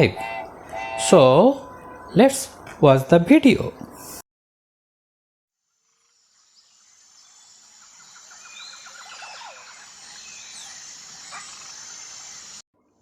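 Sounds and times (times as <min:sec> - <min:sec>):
birds chirping: 0:00.0 - 0:04.1, 0:07.2 - 0:12.6
high insect drone: 0:05.7 - 0:12.6.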